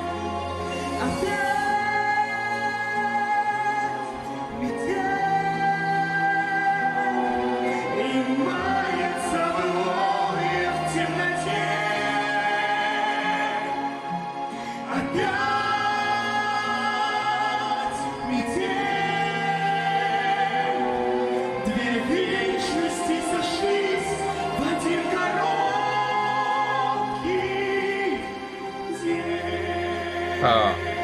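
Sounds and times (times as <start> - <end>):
woman and man singing duet: 0.0 - 31.0.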